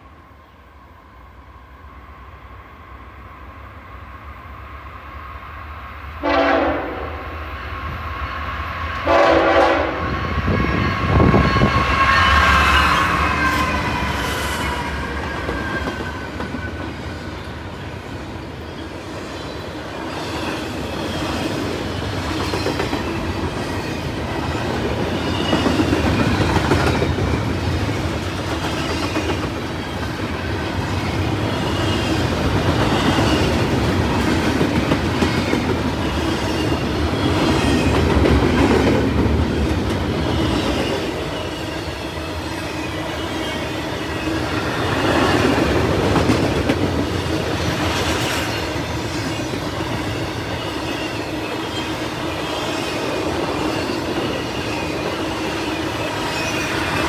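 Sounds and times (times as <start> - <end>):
train horn blasts: 6.2 - 7.4, 8.9 - 13.9.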